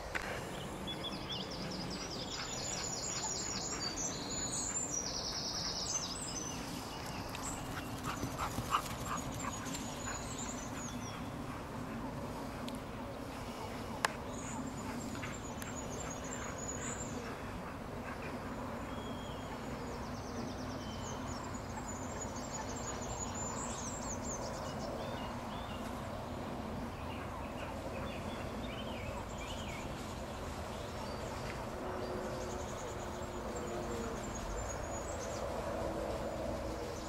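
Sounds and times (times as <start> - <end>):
birds singing: 0.4 - 35.7.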